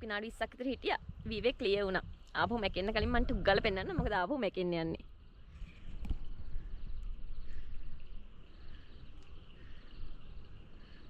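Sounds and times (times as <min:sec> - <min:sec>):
birds chirping: 0:00.0 - 0:11.0
wind rumble on microphone: 0:00.0 - 0:11.0
insects chirping: 0:02.6 - 0:11.0.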